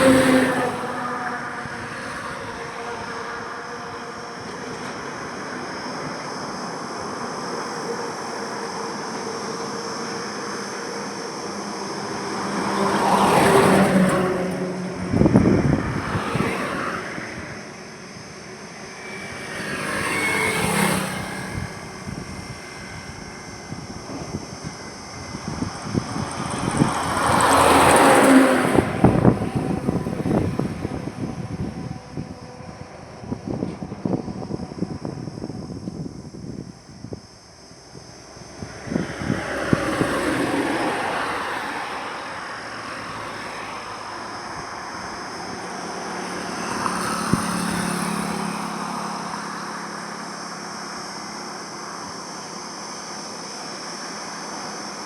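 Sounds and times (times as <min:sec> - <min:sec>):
highway traffic: 0:00.0 - 0:55.0
vehicle passing close: 0:11.6 - 0:36.6, 0:37.8 - 0:54.7.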